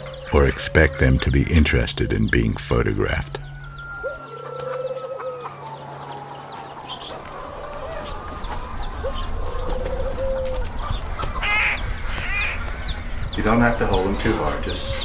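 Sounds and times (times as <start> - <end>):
warbling bird call: 0.0 - 5.6
chickens clucking: 0.0 - 15.0
small birds chirping: 0.0 - 15.0.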